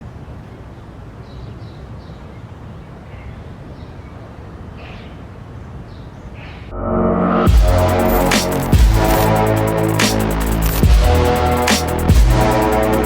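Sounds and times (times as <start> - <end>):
faint bird calls: 1.3 - 6.7
steady low rumble: 6.7 - 13.0
music: 6.8 - 13.0.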